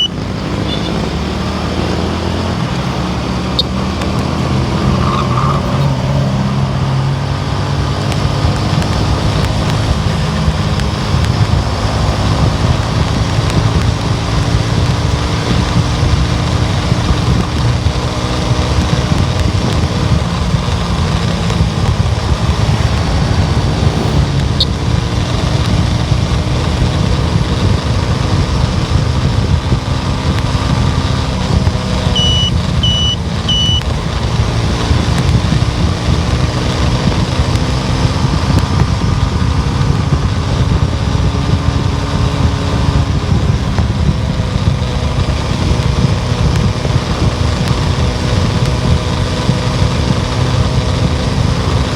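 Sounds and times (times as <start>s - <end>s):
short high electronic beeps: 0.0s - 0.9s, 32.2s - 33.8s
car road and engine noise: 0.0s - 51.9s.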